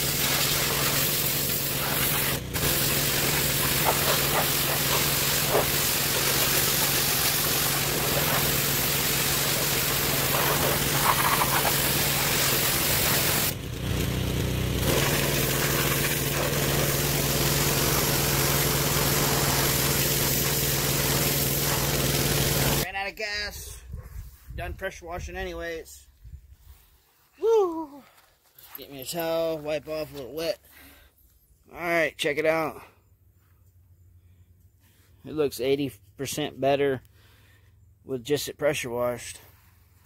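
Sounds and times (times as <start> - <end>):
high-pressure water spray hissing: 0.0 - 13.6, 14.8 - 22.9
pressure washer engine humming: 0.0 - 22.9.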